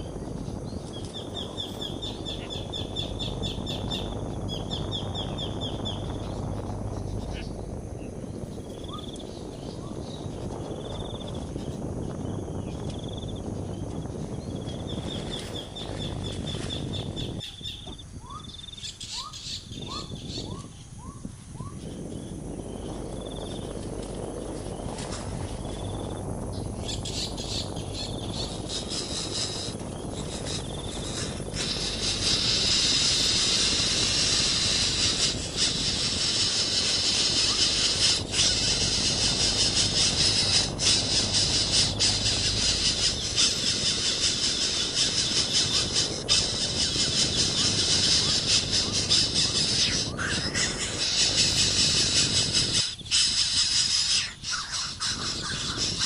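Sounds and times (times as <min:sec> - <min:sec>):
high-pitched animal shrilling: 0:31.7 - 0:56.0.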